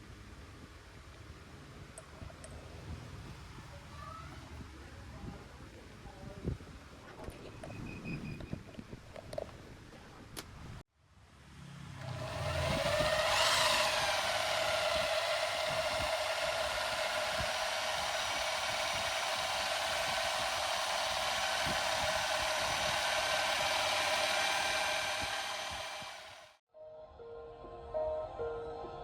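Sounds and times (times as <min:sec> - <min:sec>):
electric machine motor whine: 0:11.9 - 0:26.6.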